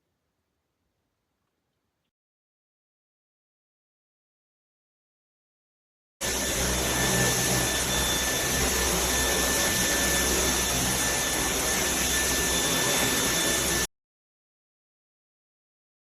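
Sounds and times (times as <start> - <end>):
vacuum cleaner running: 6.2 - 13.9.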